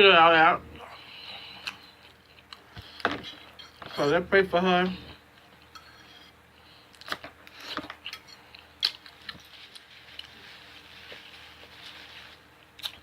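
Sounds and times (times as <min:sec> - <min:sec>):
person chewing: 0:01.1 - 0:03.8, 0:06.9 - 0:12.0, 0:12.6 - 0:13.0.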